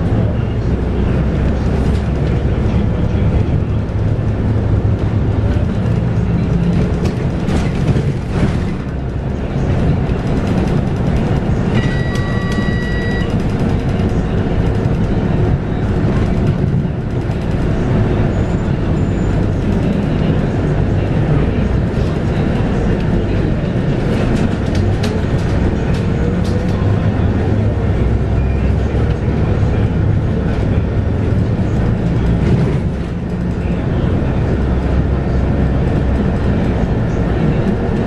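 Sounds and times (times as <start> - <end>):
bus diesel engine rumble: 0.0 - 38.0
electronic beep: 11.7 - 13.4.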